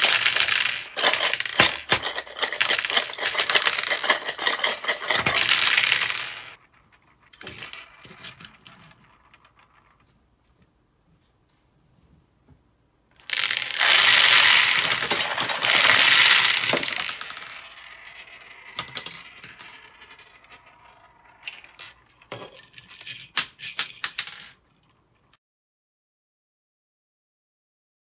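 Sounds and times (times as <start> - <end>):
balls clicking together: 0.0 - 10.0, 13.2 - 25.2
balls clattering on tabletop: 0.0 - 10.3, 13.2 - 25.3
balls rolling: 0.0 - 10.9, 13.1 - 25.3.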